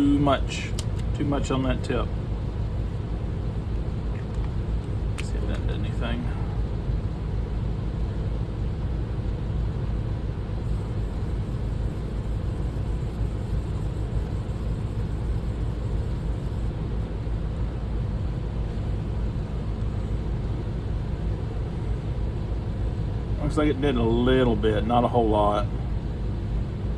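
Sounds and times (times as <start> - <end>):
steady low rumble: 0.0 - 26.9.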